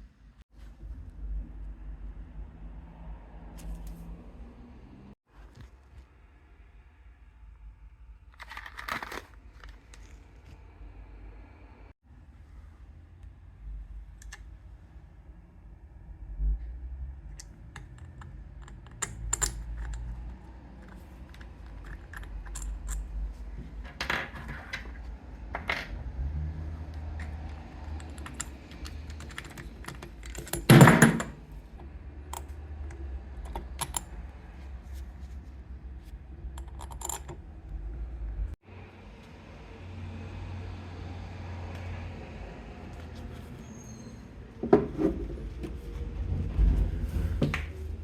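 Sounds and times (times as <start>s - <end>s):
metal parts clinking: 20.8s - 23.2s, 36.6s - 37.4s.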